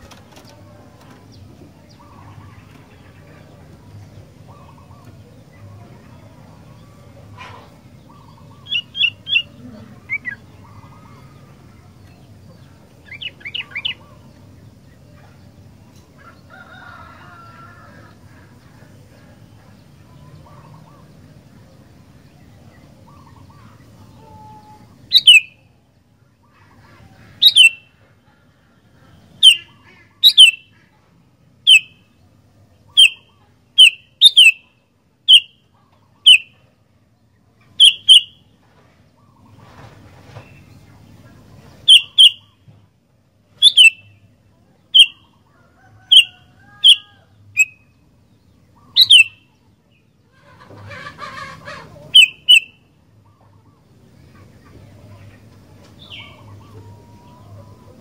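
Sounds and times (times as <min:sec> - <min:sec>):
bird chirps: 0:08.0 - 0:11.2, 0:13.0 - 0:14.8, 0:23.1 - 0:25.7, 0:27.4 - 0:28.0, 0:29.3 - 0:30.9, 0:31.6 - 0:32.2, 0:32.8 - 0:36.7, 0:37.6 - 0:38.5, 0:41.8 - 0:42.7, 0:43.5 - 0:45.4, 0:46.0 - 0:49.6, 0:52.0 - 0:54.5
bird calling with falling notes: 0:23.1 - 0:25.6, 0:27.1 - 0:27.9, 0:29.4 - 0:30.7, 0:32.9 - 0:34.7, 0:37.7 - 0:38.4, 0:41.8 - 0:42.6, 0:43.6 - 0:44.2, 0:44.9 - 0:47.9, 0:48.8 - 0:49.6, 0:50.9 - 0:53.8.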